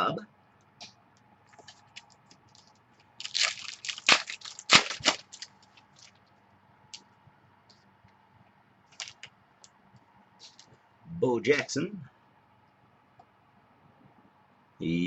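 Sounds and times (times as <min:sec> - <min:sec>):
cards crinkling and scraping: 0:01.5 - 0:06.3, 0:08.9 - 0:09.3, 0:10.4 - 0:10.8.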